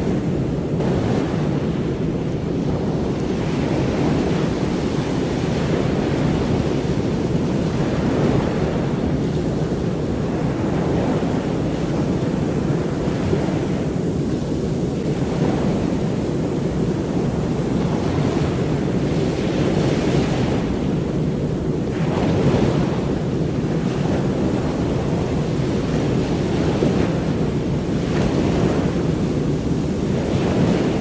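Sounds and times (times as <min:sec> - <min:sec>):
ocean surf washing: 0:00.0 - 0:31.0.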